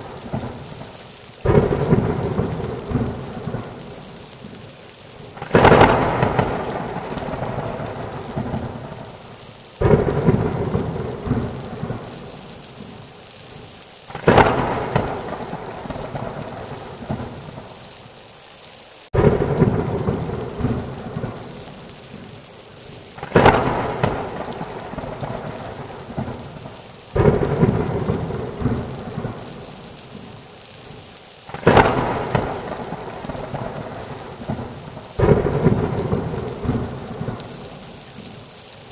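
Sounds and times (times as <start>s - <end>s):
steady rain: 0.0s - 38.9s
thunder cracks and rumbles: 1.4s - 4.1s, 5.4s - 9.0s, 9.8s - 12.4s, 14.1s - 17.4s, 19.2s - 21.6s, 23.2s - 26.5s, 27.2s - 29.6s, 31.5s - 37.6s.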